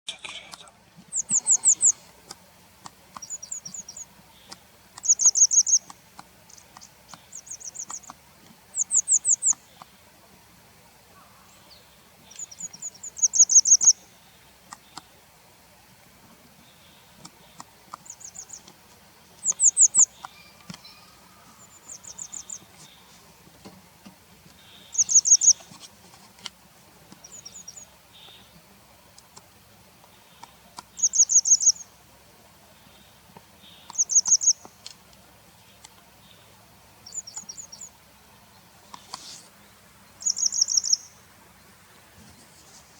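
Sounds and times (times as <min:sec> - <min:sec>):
bird calling sharp high notes: 0:19.6 - 0:21.8.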